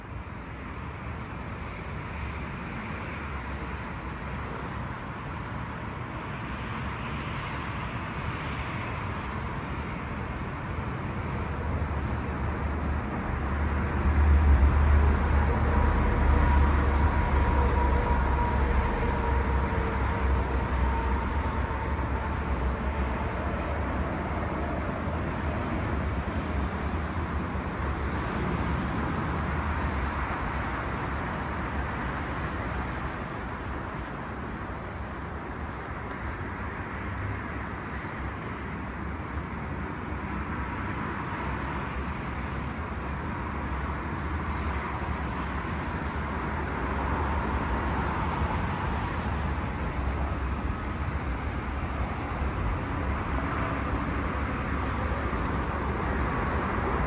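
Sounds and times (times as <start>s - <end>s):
faint whine: 0.0s - 31.3s
road noise: 0.0s - 57.0s
vehicle engine rumble: 0.0s - 57.0s.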